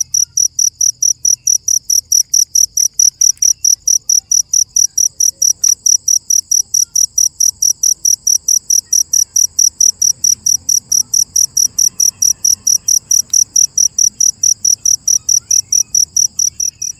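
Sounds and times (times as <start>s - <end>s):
cricket chirping: 0.0s - 16.9s.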